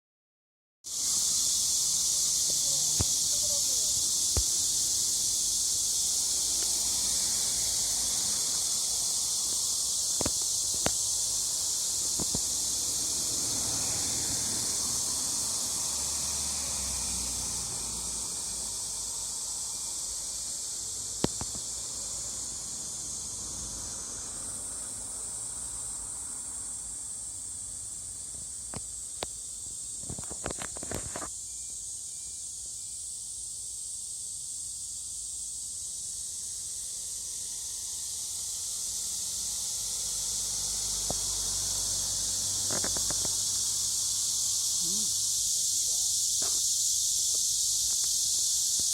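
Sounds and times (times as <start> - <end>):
cicadas singing: 0.8 - 48.9
sharp clicks: 21.2 - 21.6.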